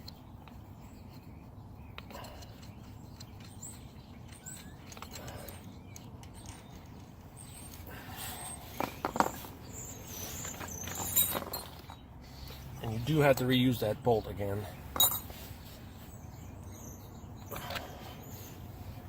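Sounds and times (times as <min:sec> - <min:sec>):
hand tools clicking and squeaking: 0:00.0 - 0:18.7
metal clattering and clinking: 0:10.4 - 0:12.0, 0:14.9 - 0:15.4.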